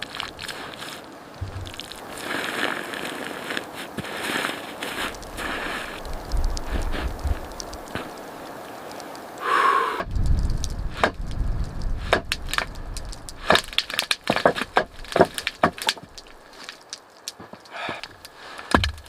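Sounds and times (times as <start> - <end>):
woody cracks and snaps: 10.0 - 19.0.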